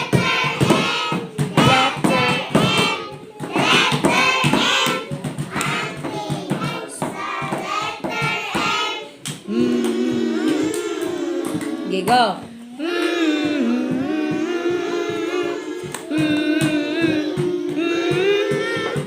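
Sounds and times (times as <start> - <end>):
children singing: 0.0 - 19.0.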